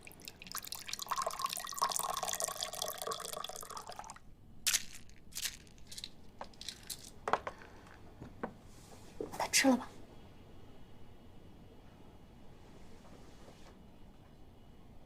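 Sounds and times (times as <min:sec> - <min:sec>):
water pouring: 0:00.0 - 0:04.2.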